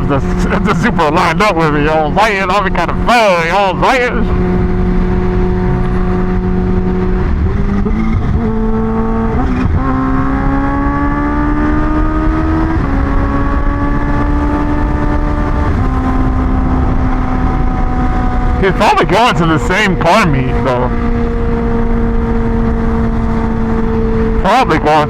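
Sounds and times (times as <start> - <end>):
motorcycle engine accelerating: 0.0 - 25.0
wind rush on microphone: 4.3 - 18.6.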